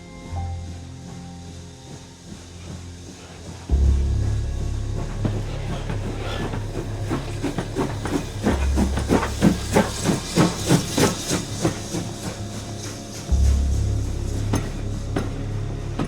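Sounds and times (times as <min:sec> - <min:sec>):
steam locomotive exhaust chuffing: 0:00.3 - 0:16.0
hiss of steam: 0:06.3 - 0:15.7.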